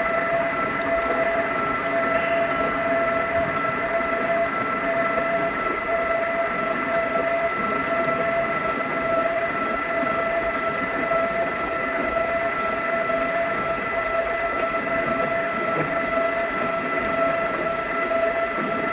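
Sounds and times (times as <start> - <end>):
drilling machine running: 0.0 - 5.7.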